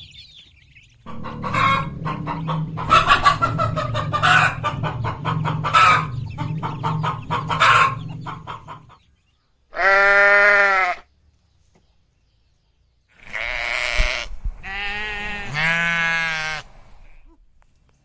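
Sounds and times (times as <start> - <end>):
chickens clucking: 0.0 - 10.1
low steady drone: 1.0 - 9.0
farm animal bleating: 9.7 - 11.1, 13.1 - 16.7.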